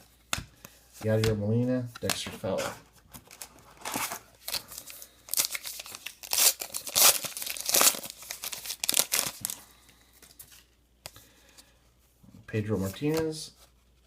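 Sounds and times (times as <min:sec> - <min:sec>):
foil wrapper tearing and crinkling: 0:04.4 - 0:09.6.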